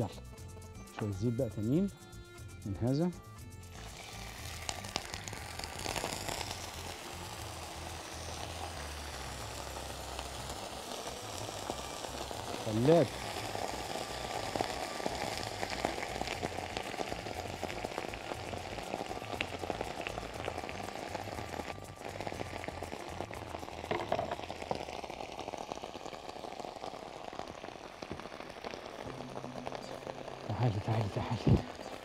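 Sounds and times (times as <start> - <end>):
food sizzling in hot oil: 0.0 - 32.0.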